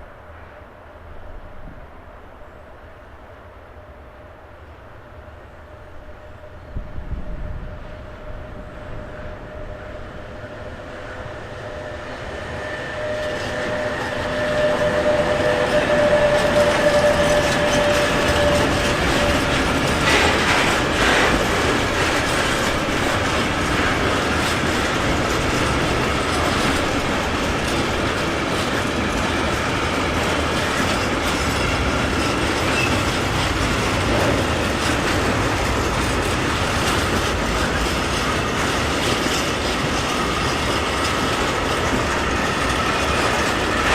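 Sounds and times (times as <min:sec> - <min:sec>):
train wheels clattering over rail joints: 0:11.8 - 0:43.9.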